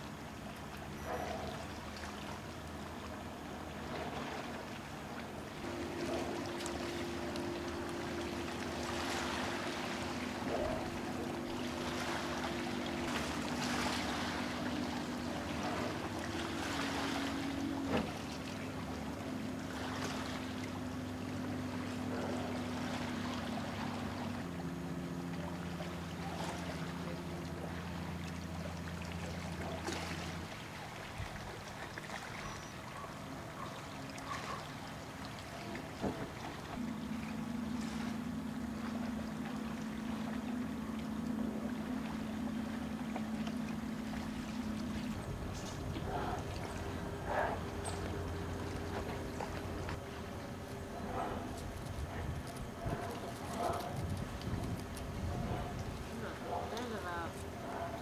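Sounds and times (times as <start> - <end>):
distant engine drone: 0.0 - 58.0
wind noise on microphone: 51.3 - 56.2.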